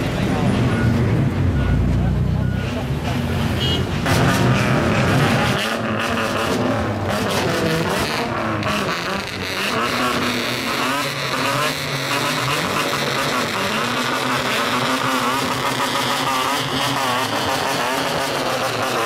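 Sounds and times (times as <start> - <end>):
crowd chatter: 0.0 - 5.8
car engines revving: 0.0 - 19.0.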